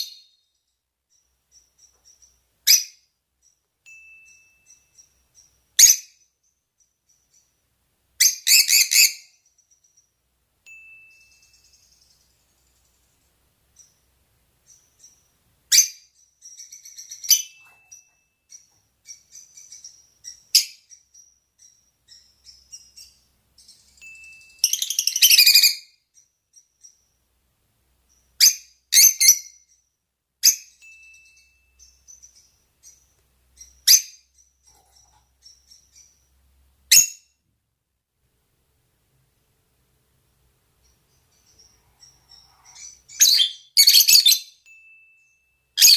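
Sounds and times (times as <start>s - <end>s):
soft bird twittering: 0.0s - 27.3s, 40.7s - 45.9s.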